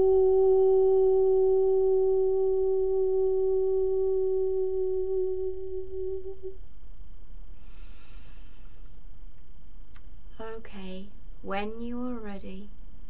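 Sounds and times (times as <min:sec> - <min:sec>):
woman humming long note: 0:00.0 - 0:06.6
soft hiss: 0:05.5 - 0:13.0.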